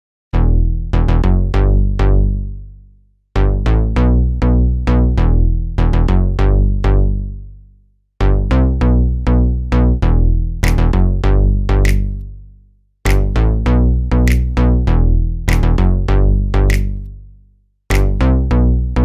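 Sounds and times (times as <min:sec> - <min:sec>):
electronic music with drum machine: 0:10.2 - 0:12.3, 0:13.1 - 0:17.0, 0:17.9 - 0:18.5.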